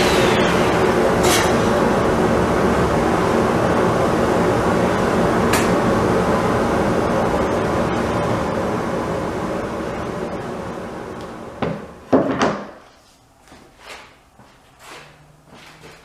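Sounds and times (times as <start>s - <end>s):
woodworking machine humming: 0.0s - 11.9s.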